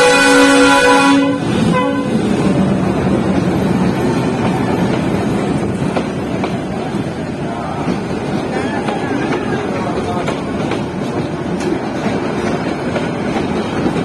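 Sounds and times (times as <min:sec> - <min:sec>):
train horn chord: 0:00.0 - 0:02.3
train coaches rumbling past: 0:00.0 - 0:14.0.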